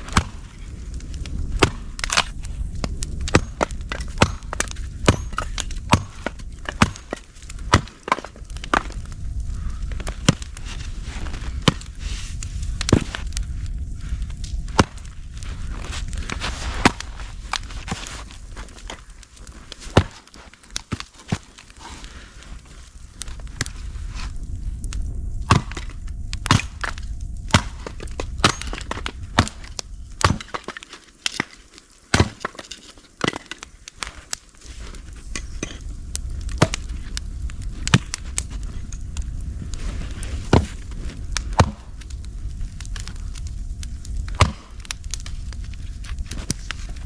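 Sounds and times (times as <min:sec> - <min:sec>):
wood being chopped: 0:00.0 - 0:00.5, 0:01.6 - 0:09.1, 0:10.0 - 0:10.6, 0:12.8 - 0:13.2, 0:14.7 - 0:15.1, 0:16.8 - 0:18.0, 0:19.9 - 0:21.6, 0:25.5 - 0:34.1, 0:36.4 - 0:36.9, 0:37.8 - 0:38.2, 0:40.5 - 0:42.0, 0:44.3 - 0:44.9.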